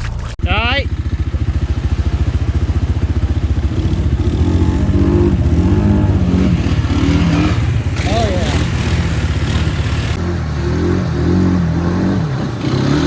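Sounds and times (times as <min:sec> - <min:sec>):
atv engine revving: 0:00.4 - 0:13.0.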